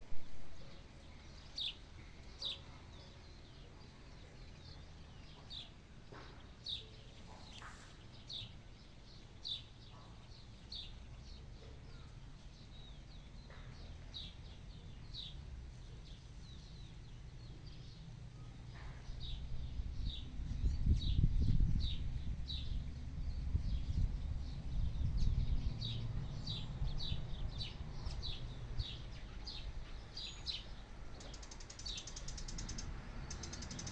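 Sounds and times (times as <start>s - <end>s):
bird chirping: 0.4s - 33.9s
low rumbling noise: 10.3s - 31.2s.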